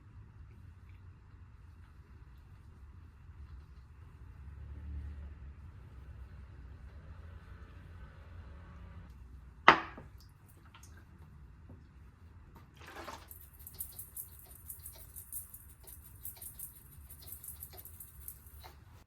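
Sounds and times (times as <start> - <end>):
high hiss with ticks and drips: 13.2 - 18.8.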